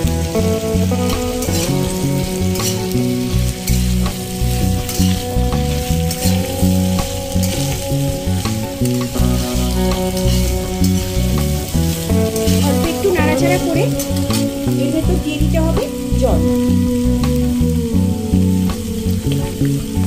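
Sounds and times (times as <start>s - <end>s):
music: 0.0s - 20.0s
vegetables sizzling in oil: 0.0s - 20.0s
spatula scraping pan: 2.5s - 7.8s, 8.4s - 14.8s.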